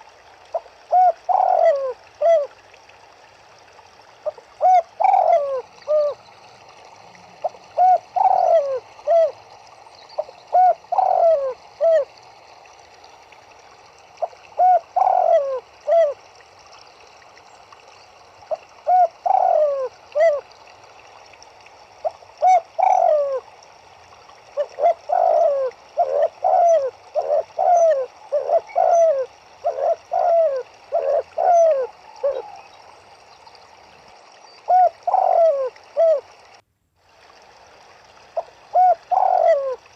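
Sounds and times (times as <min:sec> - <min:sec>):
running water hiss: 0:00.0 - 0:39.9
turtledoves cooing: 0:00.9 - 0:02.5, 0:04.3 - 0:06.2, 0:07.2 - 0:09.4, 0:10.2 - 0:12.1, 0:14.2 - 0:16.2, 0:18.5 - 0:20.4, 0:22.4 - 0:23.4, 0:24.6 - 0:32.7, 0:34.7 - 0:36.2, 0:38.7 - 0:39.8.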